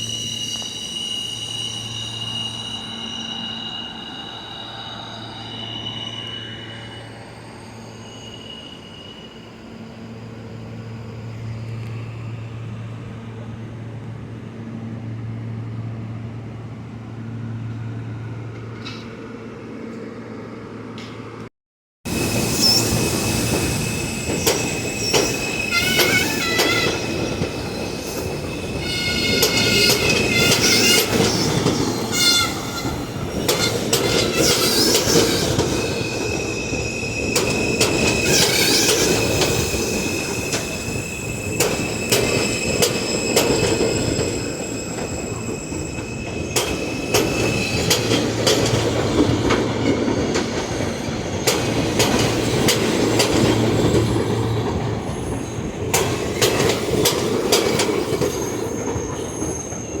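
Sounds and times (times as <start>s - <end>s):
subway train rumbling: 0.0s - 21.5s, 22.1s - 60.0s
wheels squealing: 22.1s - 54.3s.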